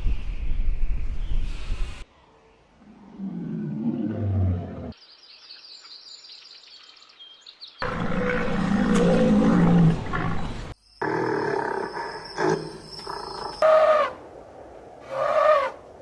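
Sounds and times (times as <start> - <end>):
animal growl: 2.9 - 5.0, 7.8 - 13.8
loud animal roar: 7.8 - 14.2.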